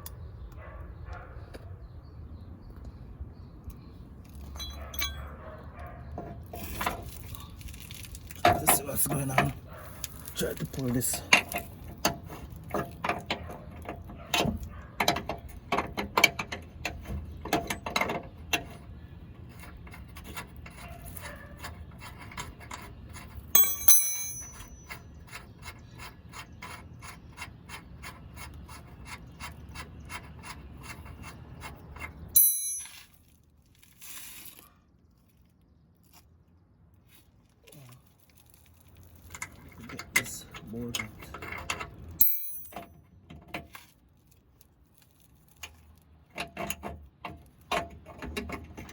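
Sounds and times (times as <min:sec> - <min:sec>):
sharp metallic clink: 0:04.5 - 0:05.3, 0:23.6 - 0:25.0, 0:32.4 - 0:33.2, 0:42.2 - 0:42.9.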